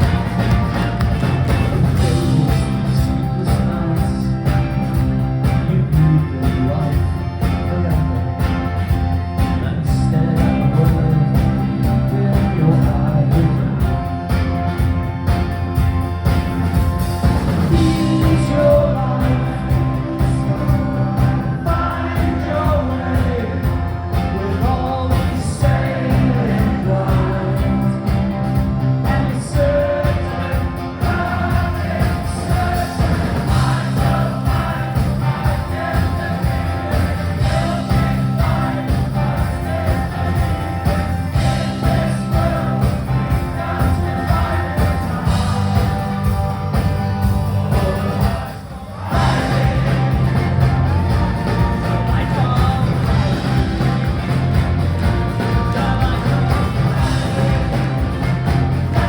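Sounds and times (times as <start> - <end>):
live rock band playing: 0.0 - 59.0
steady drum beat: 0.0 - 59.0
person singing: 17.7 - 59.0.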